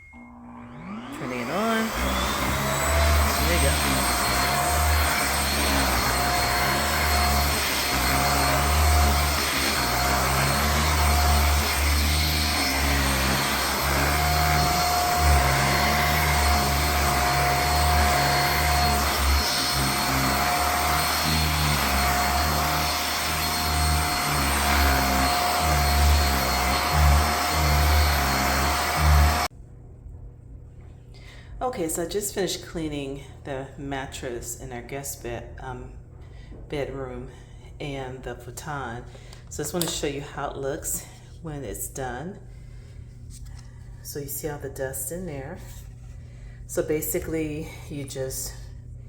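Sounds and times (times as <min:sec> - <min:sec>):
handheld vacuum humming: 0:00.1 - 0:29.5.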